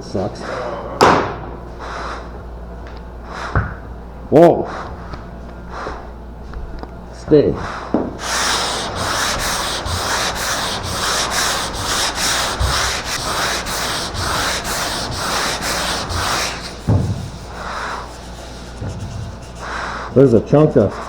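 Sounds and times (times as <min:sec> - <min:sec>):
sandpaper rubbing on metal panel: 0:08.2 - 0:21.0.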